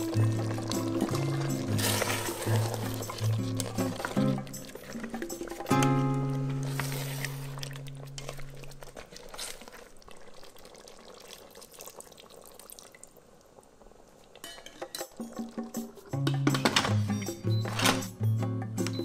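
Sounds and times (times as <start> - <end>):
sauce sloshing: 0.0 - 13.0
utensil clinking in metal pot: 14.4 - 15.4.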